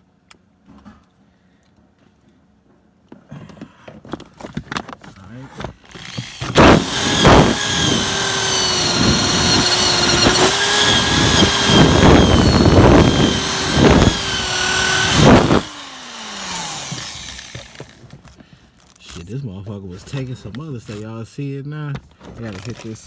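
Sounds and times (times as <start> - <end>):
drill winding down: 5.9 - 18.0
electric drill grinding metal: 5.9 - 18.1.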